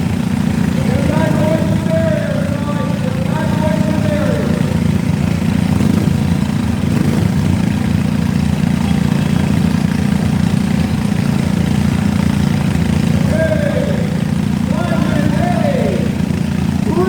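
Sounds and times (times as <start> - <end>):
riding lawn mower engines running: 0.0 - 17.0.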